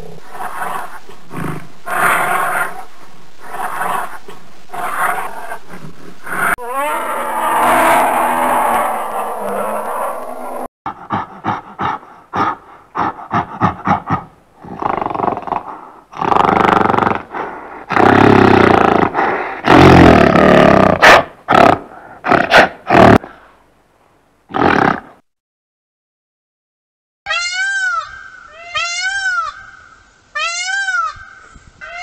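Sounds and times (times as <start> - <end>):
gorilla roars: 0.0 - 23.3
gorilla grunts: 10.9 - 23.4.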